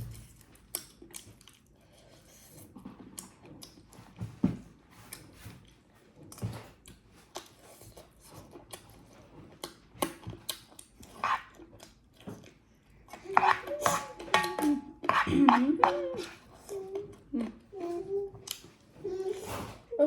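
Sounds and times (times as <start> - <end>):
chewing mouth clicks and smacks: 0.2 - 1.9
person humming: 13.6 - 18.3.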